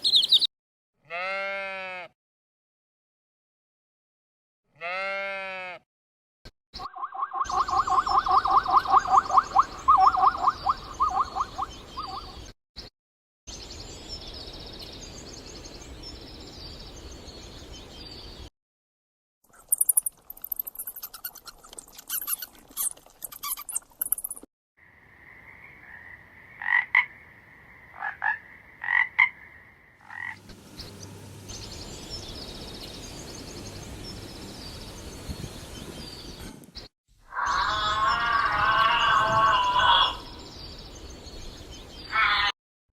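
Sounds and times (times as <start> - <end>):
fast run of frog clicks: 19.5 - 24.5.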